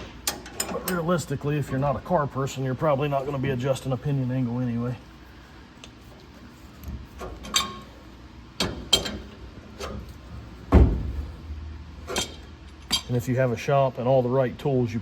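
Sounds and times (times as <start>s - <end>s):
wrenches clanking on metal: 0.0s - 2.0s, 7.2s - 8.0s, 8.6s - 10.3s, 12.0s - 13.3s.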